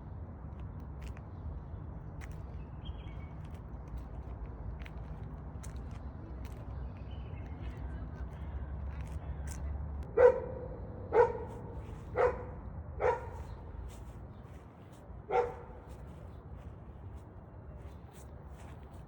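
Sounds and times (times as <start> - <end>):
dog barking: 10.1 - 13.5, 15.3 - 15.9.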